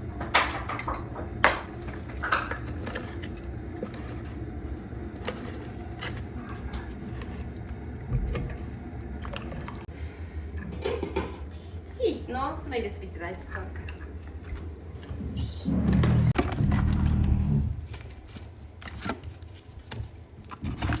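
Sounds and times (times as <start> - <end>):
steady low hum: 12.7 - 18.3.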